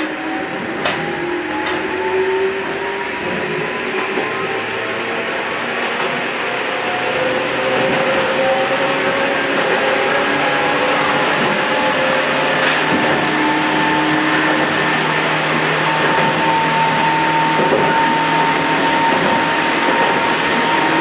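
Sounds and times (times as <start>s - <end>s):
train motor whine: 0.0s - 21.0s
train wheels rumbling on rail: 0.0s - 21.0s.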